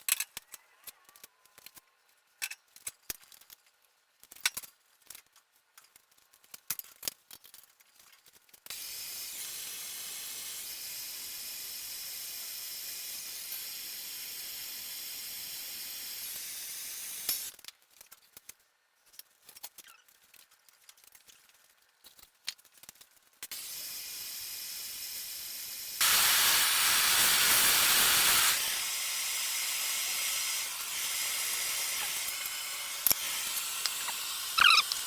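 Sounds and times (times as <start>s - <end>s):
gas torch hissing: 8.7s - 17.5s, 23.5s - 35.0s.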